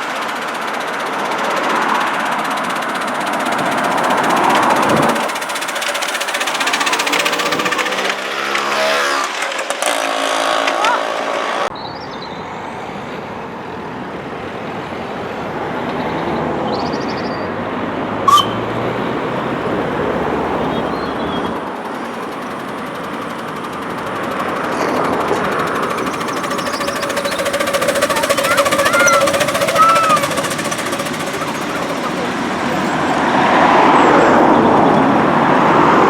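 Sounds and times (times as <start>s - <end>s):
miniature train running: 0.0s - 11.7s, 18.3s - 34.5s
short squeaks: 18.3s - 18.9s, 20.6s - 32.8s.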